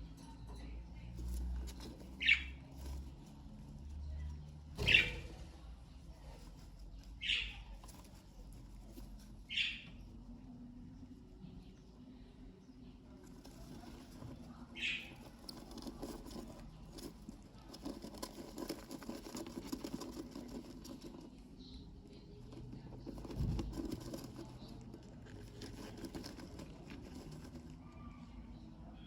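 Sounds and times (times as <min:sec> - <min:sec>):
birds scratching on bedding: 0:00.0 - 0:28.8
bird peeping: 0:02.1 - 0:02.7, 0:04.8 - 0:05.4, 0:07.0 - 0:07.8, 0:09.4 - 0:10.3, 0:14.5 - 0:15.4.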